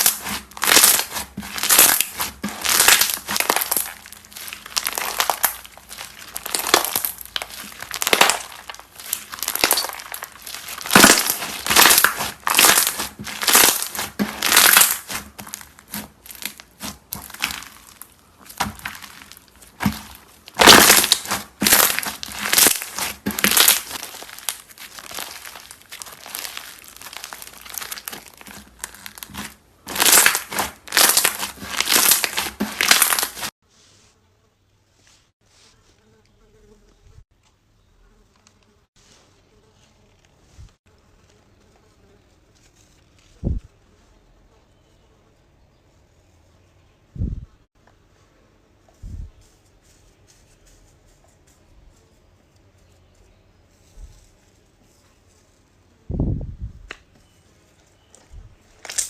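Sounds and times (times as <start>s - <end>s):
crunchy slime squeezed by hand: 0.0s - 33.5s.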